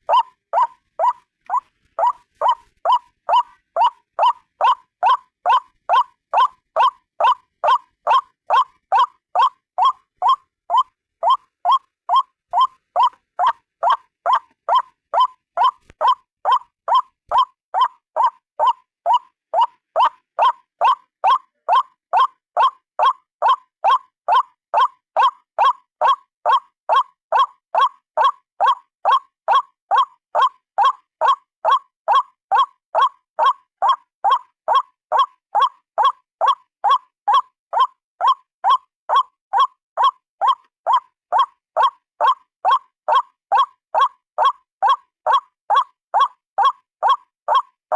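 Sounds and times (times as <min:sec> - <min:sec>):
waterhen calling: 0:00.1 - 0:21.8.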